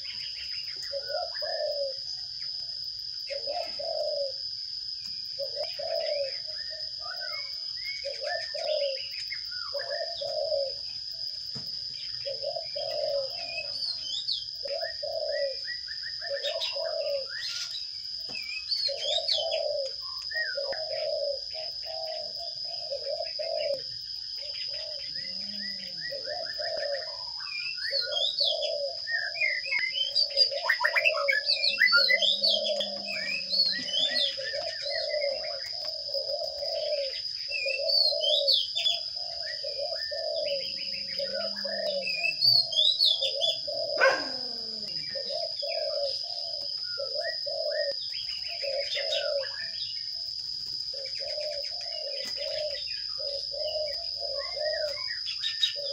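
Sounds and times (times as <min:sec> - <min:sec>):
dove cooing: 0:00.0 - 0:55.9
sparrows chirping: 0:00.0 - 0:55.9.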